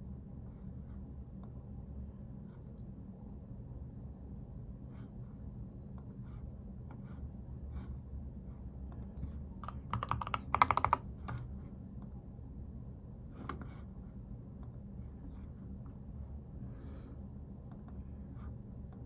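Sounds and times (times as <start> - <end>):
steady low hum: 0.0 - 19.0
computer keyboard typing: 9.6 - 11.4.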